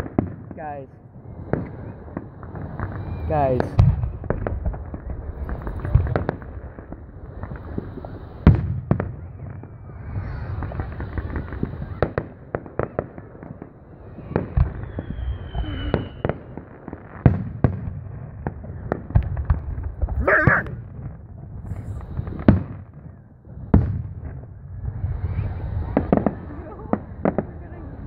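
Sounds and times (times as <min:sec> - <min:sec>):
fireworks bangs and crackles: 0:00.0 - 0:28.0
high whistle: 0:02.8 - 0:03.4, 0:14.6 - 0:16.4.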